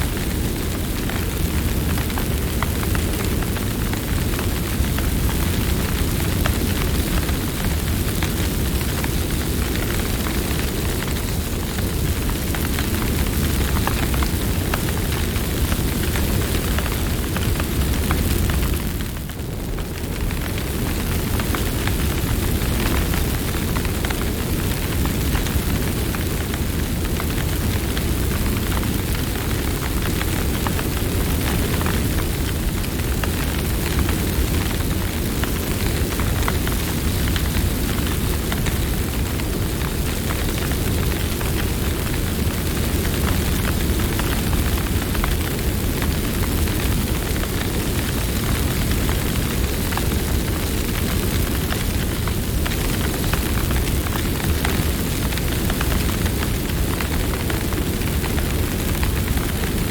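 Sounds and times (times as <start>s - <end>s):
campfire crackling: 0.1s - 59.9s.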